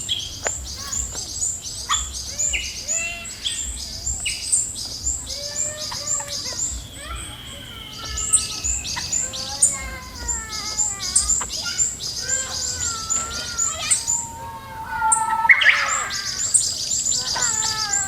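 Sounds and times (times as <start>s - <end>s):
high bird chirps: 0.0s - 18.0s
long thin bird whistle: 13.6s - 17.6s.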